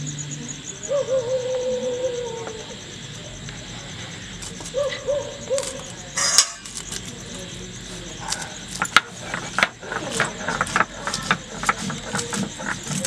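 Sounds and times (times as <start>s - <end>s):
bird hooting low: 0.0s - 3.0s, 4.6s - 6.3s
chilli cut on a blade: 8.3s - 13.0s.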